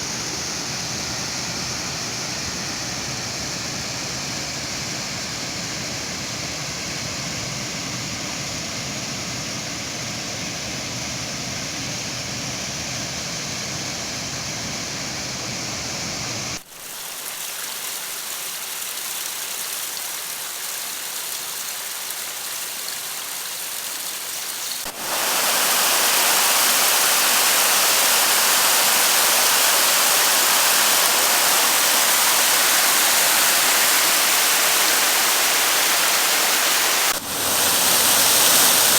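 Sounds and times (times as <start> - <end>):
waterfall rushing: 24.2 - 38.9.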